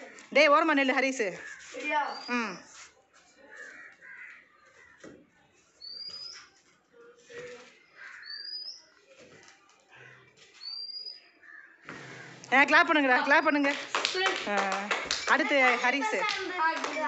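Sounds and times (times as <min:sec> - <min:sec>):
cawing-like bird calls: 0:03.5 - 0:05.1, 0:07.9 - 0:08.7.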